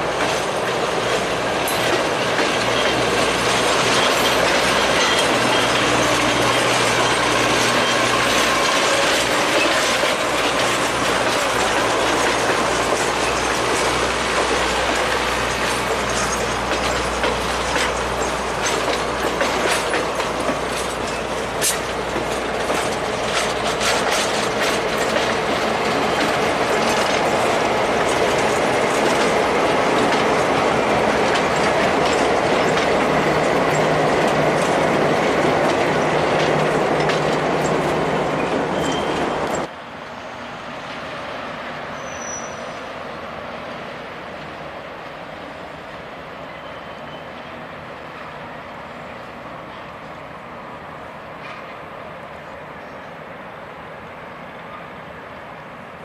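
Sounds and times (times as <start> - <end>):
train wheels clicking over rails: 0.0 - 39.7
locomotive engine hum: 0.0 - 40.0
train rumble: 0.0 - 56.0
wheel squeal: 2.7 - 12.5, 37.0 - 40.4, 41.9 - 42.8.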